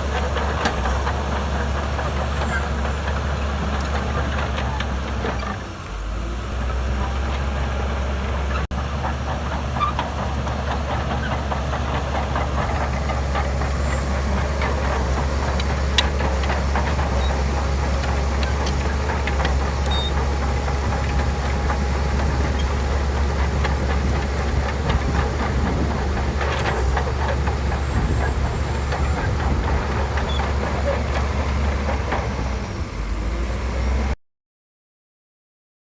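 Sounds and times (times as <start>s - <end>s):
bulldozer diesel engine drone: 0.0s - 34.2s
steel tracks clanking: 8.7s - 33.0s.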